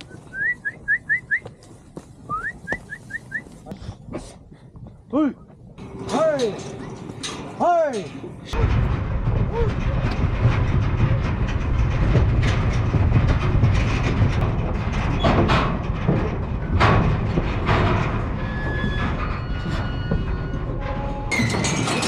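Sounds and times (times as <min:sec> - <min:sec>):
livestock trailer rattling and clanking: 0:05.8 - 0:22.0
metal knocks: 0:05.8 - 0:22.0
steady low rumble: 0:08.2 - 0:18.5.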